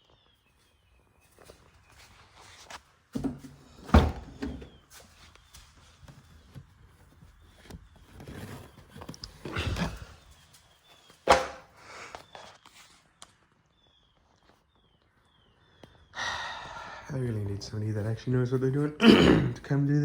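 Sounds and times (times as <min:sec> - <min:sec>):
soft shuffling: 0:01.0 - 0:03.8.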